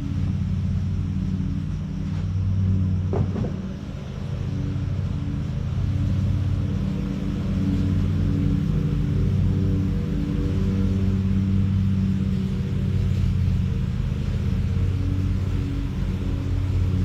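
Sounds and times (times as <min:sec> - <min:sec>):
tractor engine idling: 0:00.0 - 0:17.0
sharp knocks: 0:03.1 - 0:03.7.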